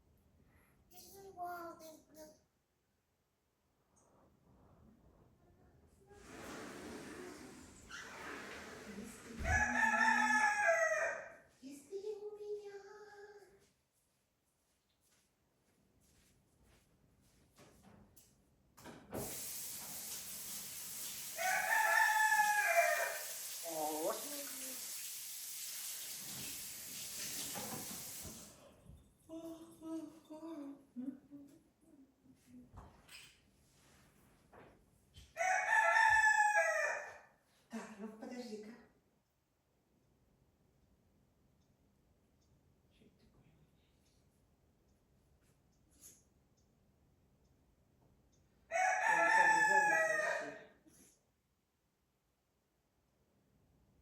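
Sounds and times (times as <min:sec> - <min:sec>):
steady hiss: 0:19.2 - 0:21.4.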